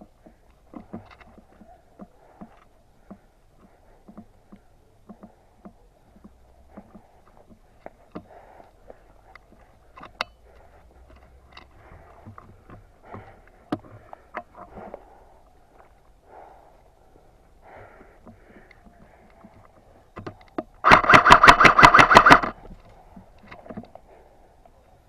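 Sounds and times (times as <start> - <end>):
sharp cracks: 20.8 - 22.6.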